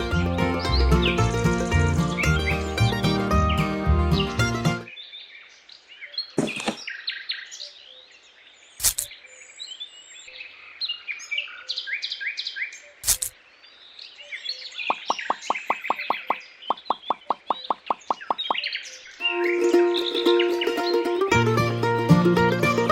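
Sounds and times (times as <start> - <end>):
small birds chirping: 0.0 - 21.2
short loud knocks: 6.4 - 6.8.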